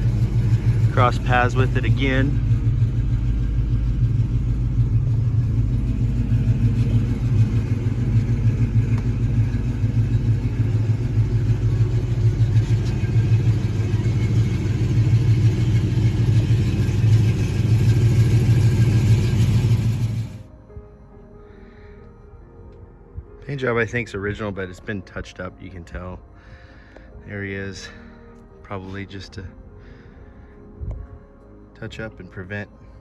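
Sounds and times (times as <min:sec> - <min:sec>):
car engine idling: 0:00.0 - 0:20.5.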